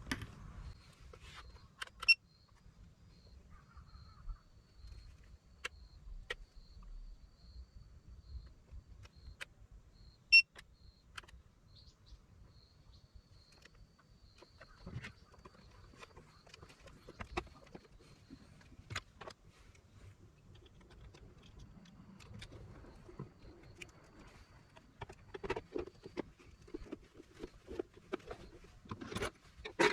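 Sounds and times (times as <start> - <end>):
light clicks and handling knocks: 13.5 - 29.9.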